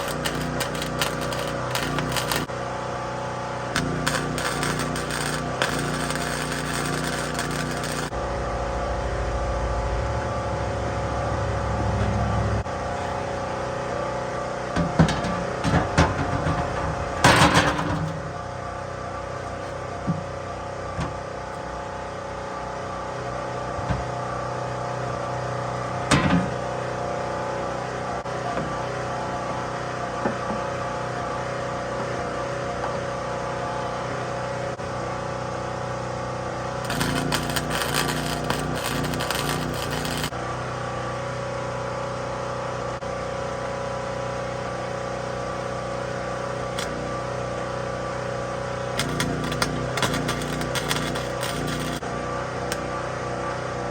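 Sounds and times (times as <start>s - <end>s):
portable generator running: 0.0s - 2.6s, 3.7s - 18.1s, 36.8s - 40.4s.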